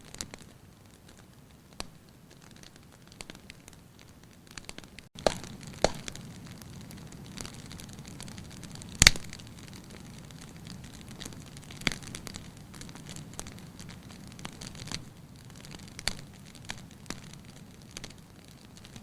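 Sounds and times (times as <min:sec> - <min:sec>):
fire crackling and popping: 0:00.0 - 0:19.0
low steady fire rumble: 0:00.0 - 0:19.0.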